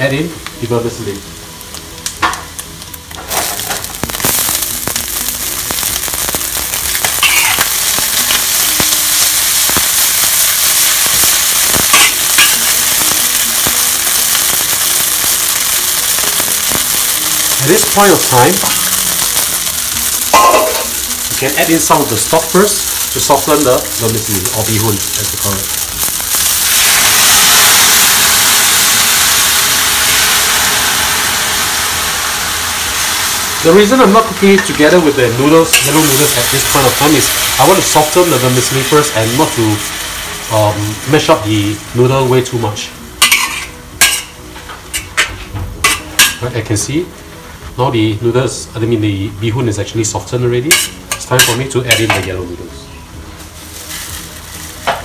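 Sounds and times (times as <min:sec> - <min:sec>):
food sizzling in hot oil: 0:00.0 - 0:52.6, 0:53.2 - 0:55.0
spatula scraping and clinking wok: 0:11.9 - 0:12.8, 0:43.2 - 0:44.3, 0:50.7 - 0:52.4.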